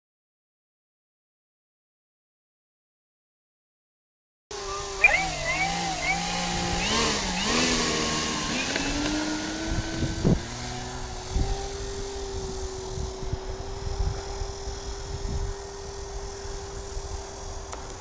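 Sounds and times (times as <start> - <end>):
electric propeller motor drone: 4.5 - 18.0.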